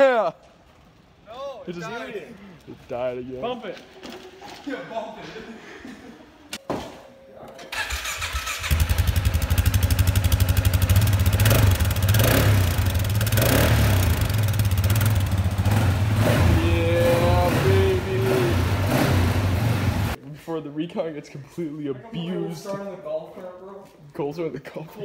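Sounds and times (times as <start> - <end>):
small engine revving: 7.8 - 20.2.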